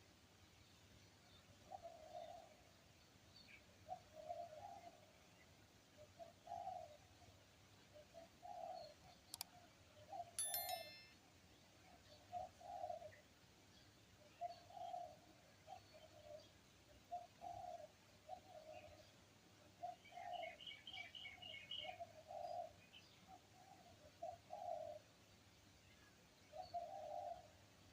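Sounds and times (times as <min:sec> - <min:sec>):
high ringing ding: 0:10.4 - 0:11.2.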